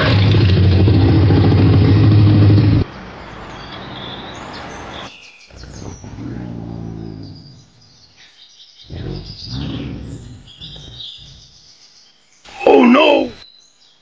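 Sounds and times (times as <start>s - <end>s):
bird chirps: 3.2s - 14.0s.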